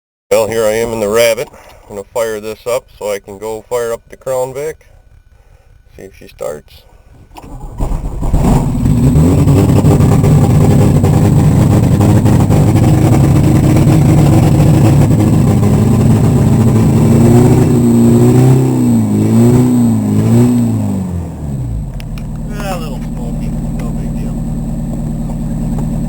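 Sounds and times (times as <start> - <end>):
car engine starting and revving: 7.4 - 26.0.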